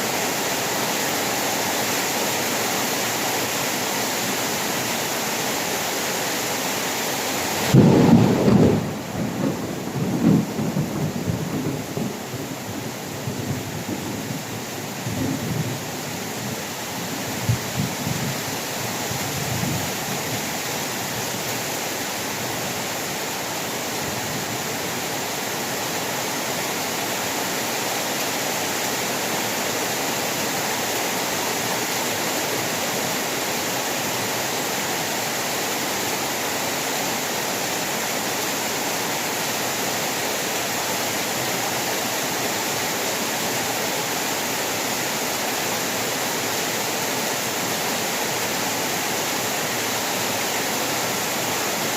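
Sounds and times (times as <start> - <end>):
heavy rain falling: 0.0 - 51.9
low thunder rumble: 7.7 - 14.4.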